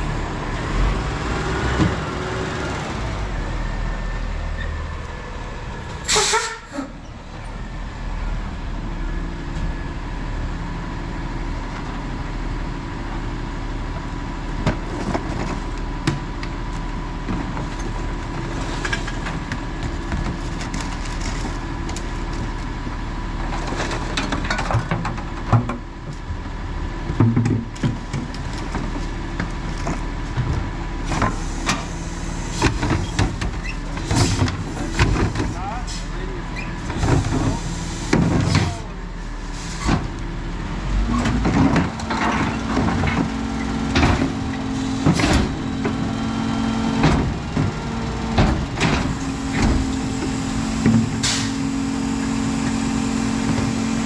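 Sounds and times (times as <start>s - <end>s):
garbage truck running: 0.0s - 54.0s
air brake hiss: 6.0s - 7.0s, 51.0s - 51.7s.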